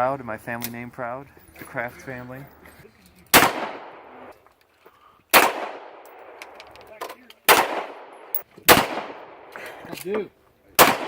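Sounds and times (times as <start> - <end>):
pistol shots with echo: 3.3 - 4.3, 5.3 - 6.5, 7.5 - 9.5, 10.8 - 11.0.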